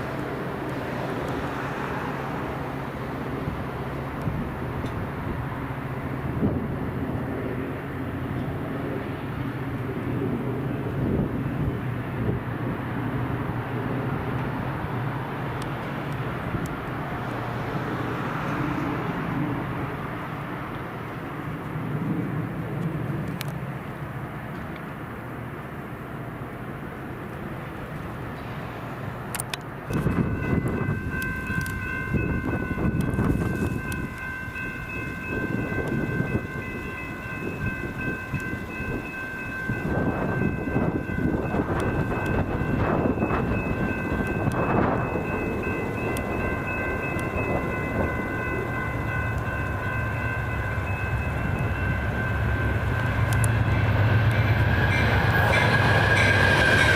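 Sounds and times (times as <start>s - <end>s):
diesel train passing: 0.0s - 56.9s
faint high ticks: 53.2s - 53.6s.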